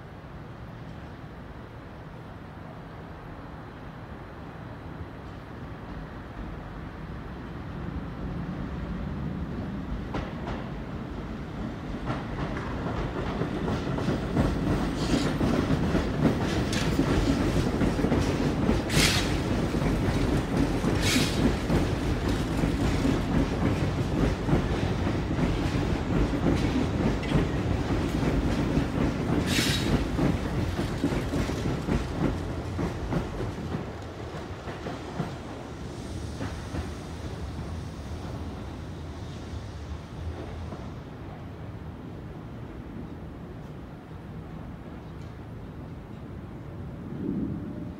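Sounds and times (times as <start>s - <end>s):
train rumble: 0.0s - 47.9s
train wheels clicking over rail joints: 11.9s - 38.7s.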